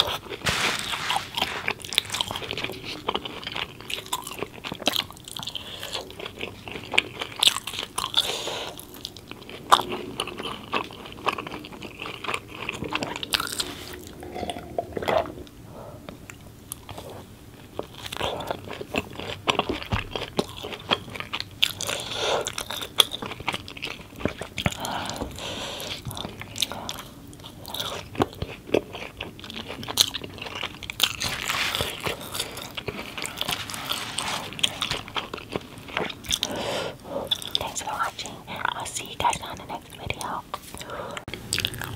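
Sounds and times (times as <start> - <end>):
person chewing food: 0.0 - 41.9.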